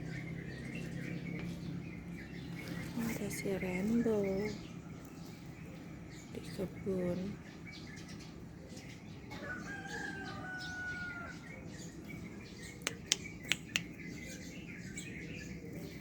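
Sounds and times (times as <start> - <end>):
rooster crowing: 9.3 - 11.5
sharp clicks: 12.9 - 14.0.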